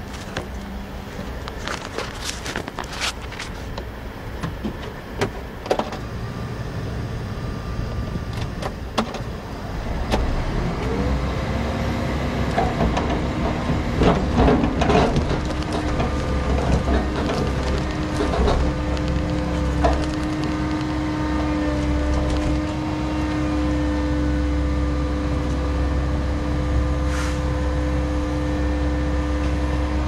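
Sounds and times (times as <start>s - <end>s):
diesel engine running: 0.0s - 30.0s
hydraulic whine: 3.5s - 30.0s
knocks and clunks: 12.5s - 21.1s.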